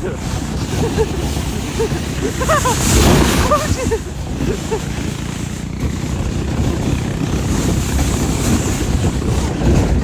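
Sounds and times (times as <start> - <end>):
atv engine rumbling: 0.0 - 10.0
wind buffeting microphone: 0.0 - 10.0.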